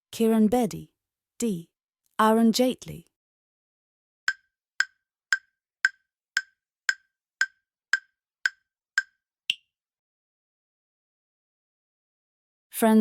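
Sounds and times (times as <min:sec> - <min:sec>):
clock-like timer ticks: 0:04.3 - 0:09.2.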